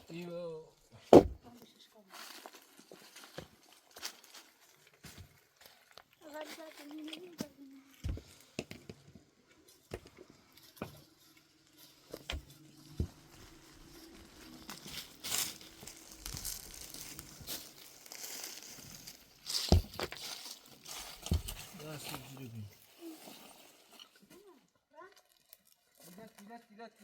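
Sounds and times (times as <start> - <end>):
rustling and crinkling handling: 0.8 - 27.0
sharp knocks: 1.2 - 1.4.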